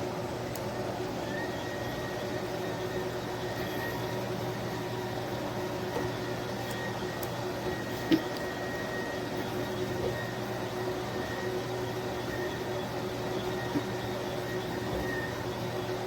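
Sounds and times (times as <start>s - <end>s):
electric mop motor whine: 0.6s - 16.0s
click: 6.0s - 7.4s.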